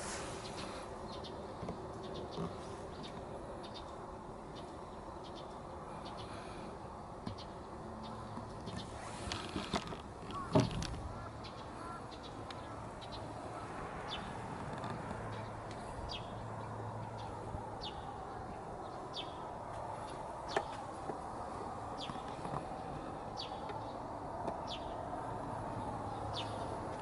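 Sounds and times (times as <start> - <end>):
outdoor background noise: 0.0 - 27.0.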